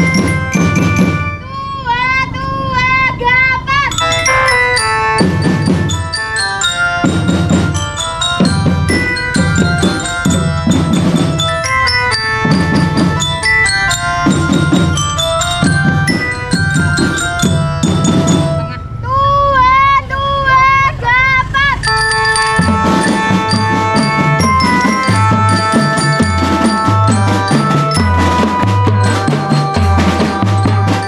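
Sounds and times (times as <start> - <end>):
snare and bass drums: 0.0 - 1.3, 5.2 - 6.3, 7.0 - 18.6, 22.6 - 31.0
glockenspiel melody: 0.0 - 1.7, 3.7 - 19.0, 21.8 - 31.0.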